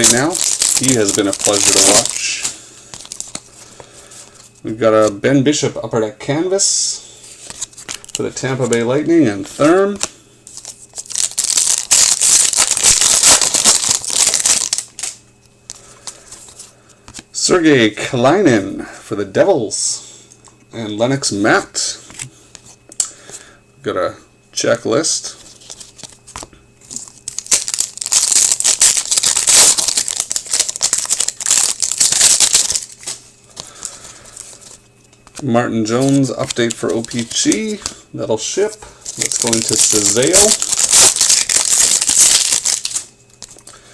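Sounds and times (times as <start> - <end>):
packaging wrapper crinkling: 0.0 - 5.2, 7.4 - 16.6, 25.5 - 38.0, 38.7 - 43.7.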